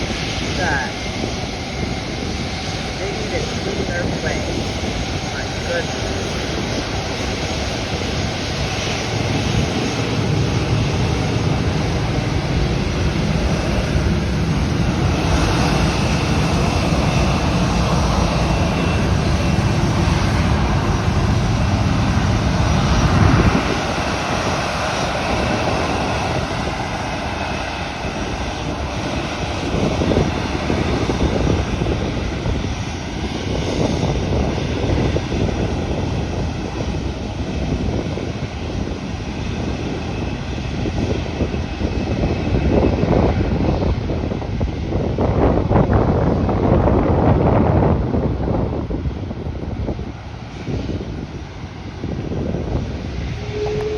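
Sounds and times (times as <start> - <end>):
airliner engines roaring: 0.0 - 53.9
faint high whine: 53.3 - 53.9.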